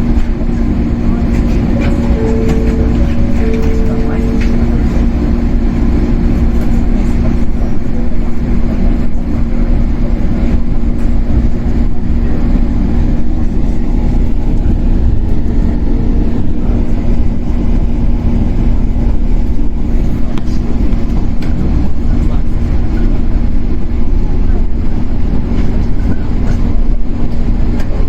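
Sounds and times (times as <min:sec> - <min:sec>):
wheels rumbling on rail: 0:00.0 - 0:28.0
traction motor and gear hum: 0:00.1 - 0:08.9.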